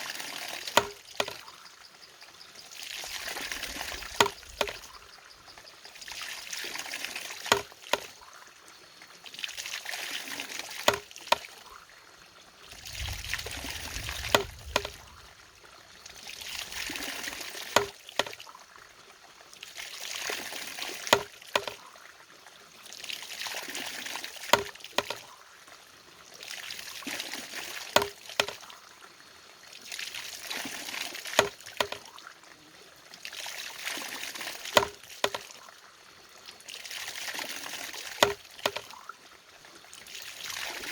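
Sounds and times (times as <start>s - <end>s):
water pouring: 0.0s - 1.6s, 2.6s - 11.7s, 12.5s - 18.6s, 19.6s - 21.9s, 22.9s - 25.4s, 26.4s - 28.7s, 29.8s - 32.2s, 33.2s - 35.8s, 36.4s - 39.2s, 39.9s - 40.9s
brief low rumble: 12.8s - 15.4s.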